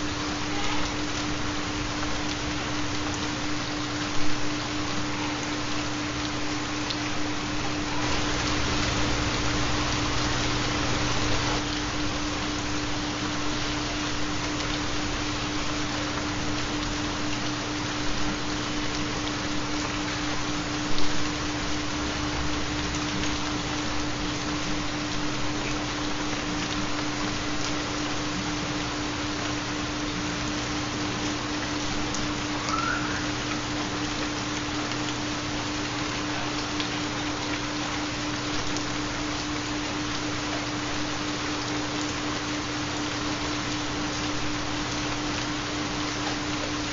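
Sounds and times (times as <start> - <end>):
rain: 0.0 - 46.9
low binaural hum tone: 32.3 - 33.8.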